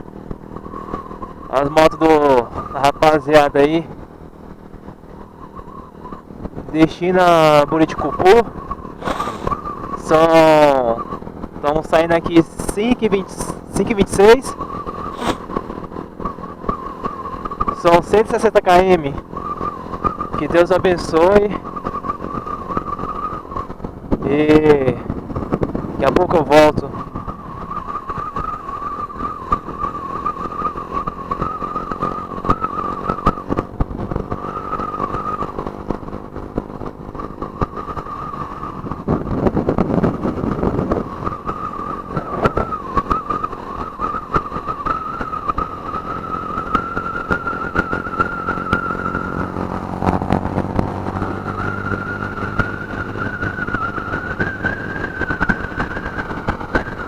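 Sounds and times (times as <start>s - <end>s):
motorcycle engine whine: 0.0s - 57.0s.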